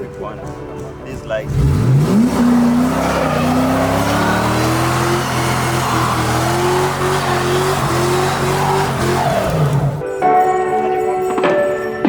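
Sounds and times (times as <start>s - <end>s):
car engine revving high: 1.4s - 10.0s
tyres squealing: 1.4s - 10.1s.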